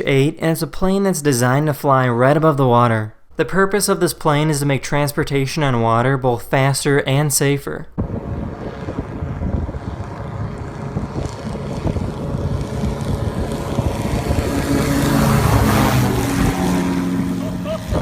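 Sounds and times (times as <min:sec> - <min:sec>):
engine and propeller drone: 0:08.0 - 0:18.0
rush of wind and water: 0:08.0 - 0:18.0.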